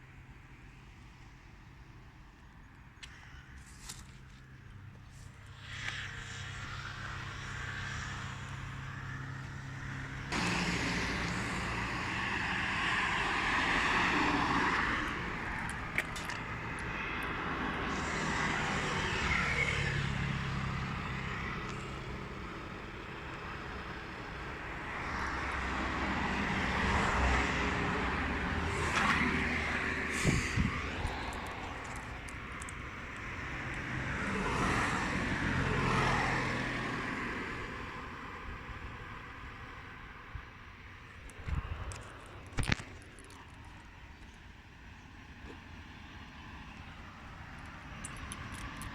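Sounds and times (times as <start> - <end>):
jet engine noise: 4.8 - 38.0.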